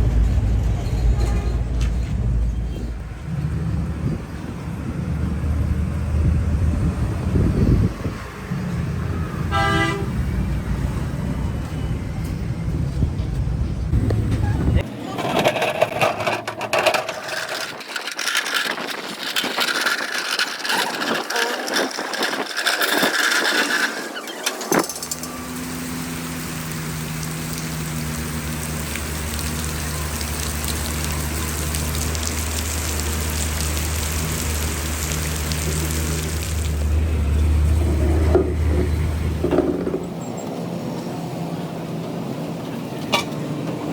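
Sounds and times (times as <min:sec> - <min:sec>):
clattering and knocking: 0:15.2 - 0:25.2, 0:37.8 - 0:40.2.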